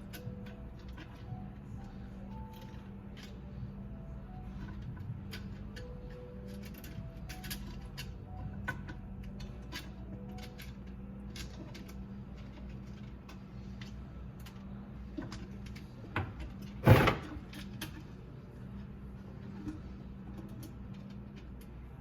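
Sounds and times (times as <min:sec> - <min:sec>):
loud clunk: 0:16.8 - 0:17.6.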